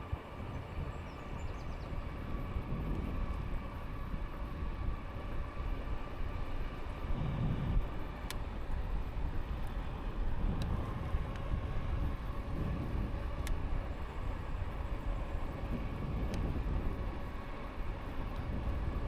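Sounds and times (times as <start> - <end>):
wind on microphone: 0.0 - 5.9, 6.9 - 17.5
road rumble: 0.0 - 19.0
faint ticks: 7.2 - 8.5, 13.4 - 13.6.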